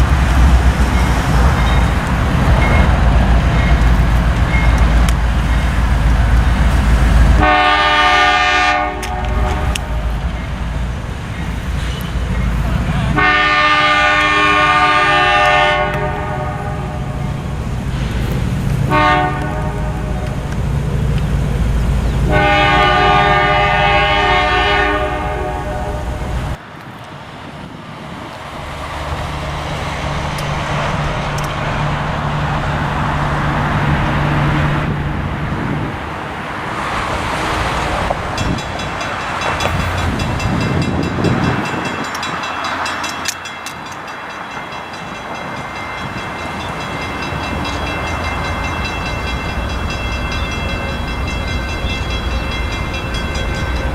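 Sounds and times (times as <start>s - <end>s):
freight cars rumbling: 0.0s - 53.9s
locomotive engine drone: 0.0s - 53.9s
train horn blasts: 7.4s - 10.1s, 13.1s - 17.2s, 18.9s - 20.3s, 22.3s - 26.3s.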